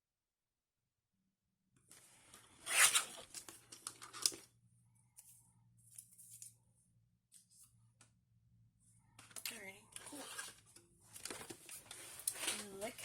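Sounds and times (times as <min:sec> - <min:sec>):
paper rustling and scraping: 0:11.2 - 0:13.0.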